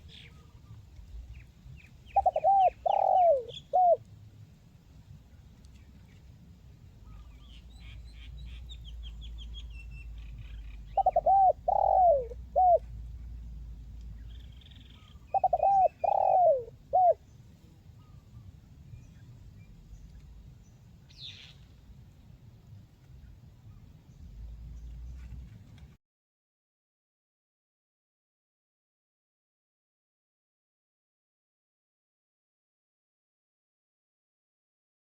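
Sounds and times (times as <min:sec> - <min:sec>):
dove cooing: 0:02.1 - 0:04.0, 0:10.8 - 0:12.9, 0:14.9 - 0:17.2.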